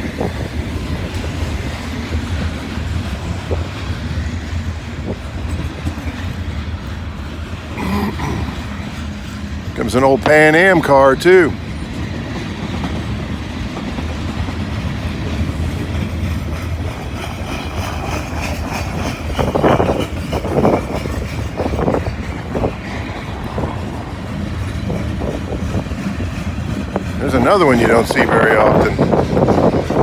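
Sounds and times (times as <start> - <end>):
wheels clicking over rail joints: 0.0 - 7.8, 8.6 - 30.0
freight train rolling past: 0.0 - 30.0
train clattering: 0.0 - 30.0.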